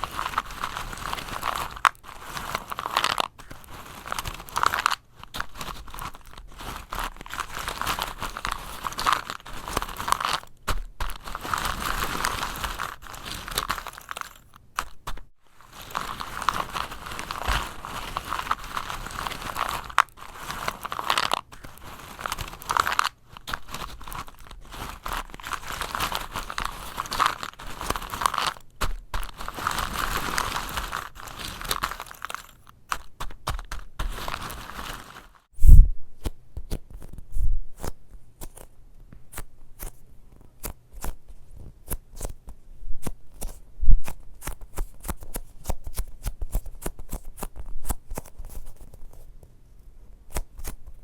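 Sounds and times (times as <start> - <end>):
crunching and crinkling: 0.0 - 35.8.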